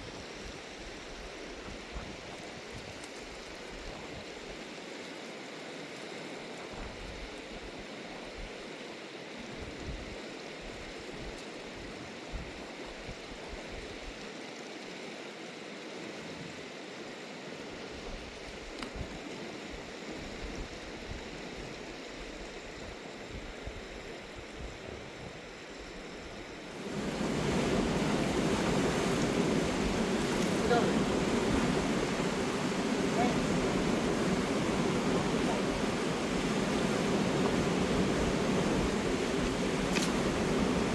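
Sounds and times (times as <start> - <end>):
river rushing over rocks: 26.7 - 40.9.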